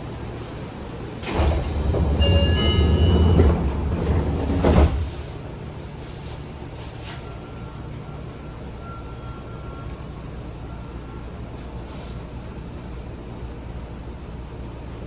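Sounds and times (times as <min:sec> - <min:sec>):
standing train hum: 0:00.0 - 0:15.0
train doors closing rumble: 0:00.2 - 0:08.7
doors shutting thud: 0:01.2 - 0:05.4.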